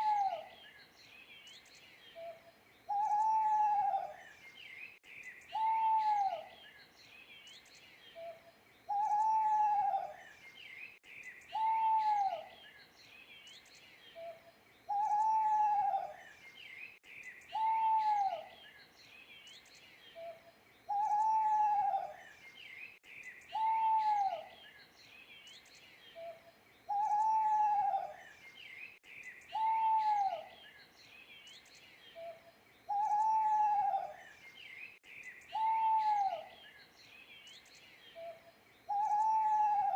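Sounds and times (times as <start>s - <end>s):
owl hooting: 0.0s - 0.5s, 2.2s - 4.2s, 5.5s - 6.5s, 8.2s - 10.2s, 11.5s - 12.5s, 14.2s - 16.2s, 17.5s - 18.5s, 20.2s - 22.2s, 23.5s - 24.5s, 26.2s - 28.2s, 29.5s - 30.6s, 32.2s - 34.2s, 35.5s - 36.6s, 38.2s - 39.9s
small birds chirping: 0.0s - 39.9s.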